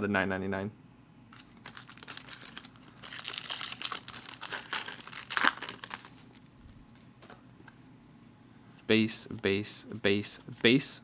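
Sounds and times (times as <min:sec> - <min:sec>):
foil wrapper crinkling and tearing: 0:01.4 - 0:07.0.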